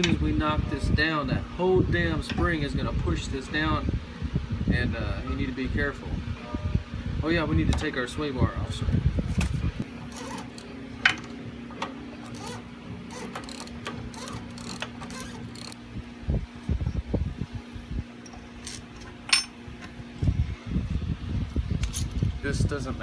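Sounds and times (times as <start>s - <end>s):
steady low hum: 0.0s - 23.0s
hand tools clinking on metal: 18.2s - 19.6s.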